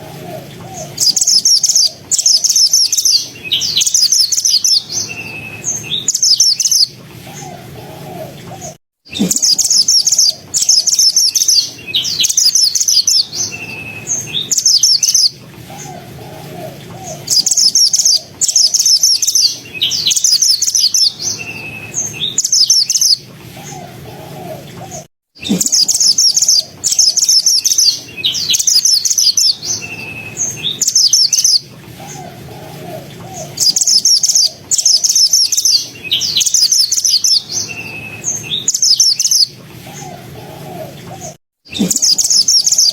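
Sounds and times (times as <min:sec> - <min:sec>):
bird singing rapid phrases: 0:00.0 - 0:42.9.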